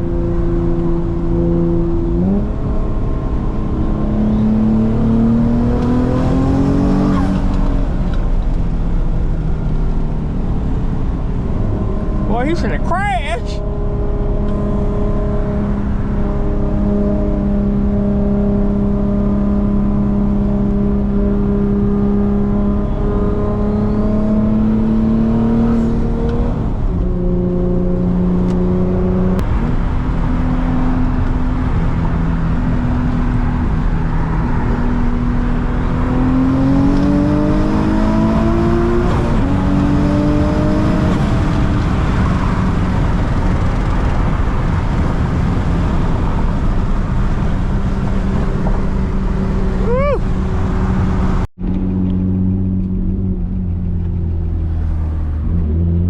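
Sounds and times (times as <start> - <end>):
car engine cruising: 0.0 - 56.0
road noise: 0.0 - 56.0.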